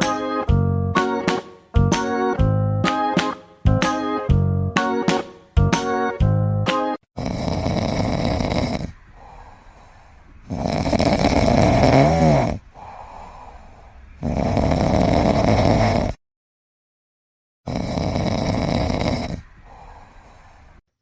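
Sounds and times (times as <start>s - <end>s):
pet snoring: 7.2s - 9.0s, 10.4s - 13.1s, 14.2s - 16.2s, 17.7s - 19.9s
quiet breaths: 7.2s - 16.2s, 17.8s - 20.8s.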